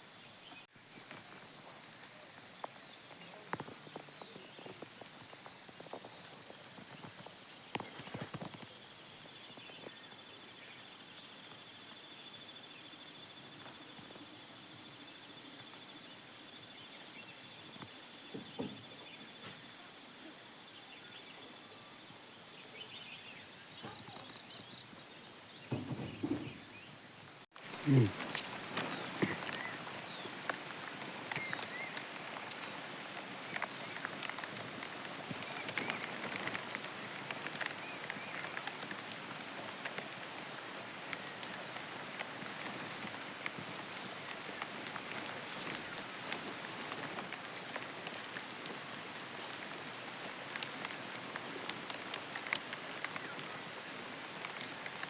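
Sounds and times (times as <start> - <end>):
soft knocks and rustles: 25.7 - 26.8.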